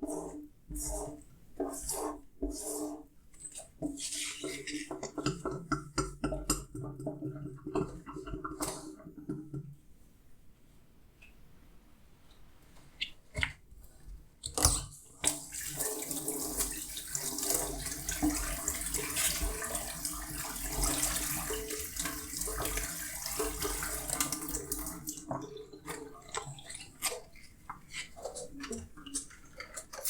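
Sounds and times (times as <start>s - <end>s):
tap water running into sink: 15.2s - 30.0s.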